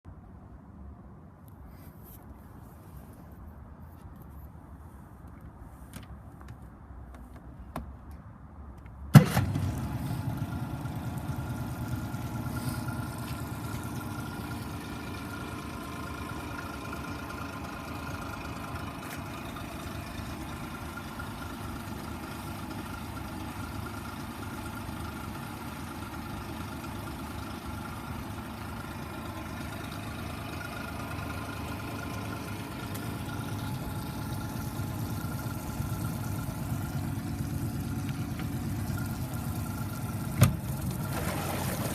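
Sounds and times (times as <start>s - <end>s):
outboard motor idling: 9.2s - 41.9s.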